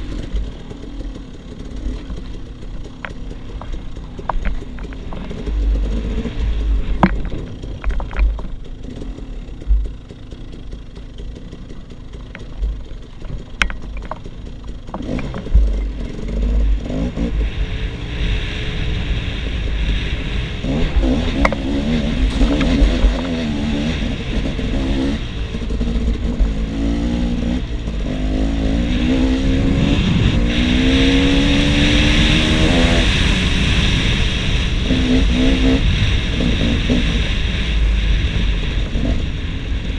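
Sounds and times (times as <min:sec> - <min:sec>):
motorcycle engine revving: 0:00.0 - 0:39.9
knocks and clatter: 0:01.7 - 0:16.8, 0:20.8 - 0:23.8.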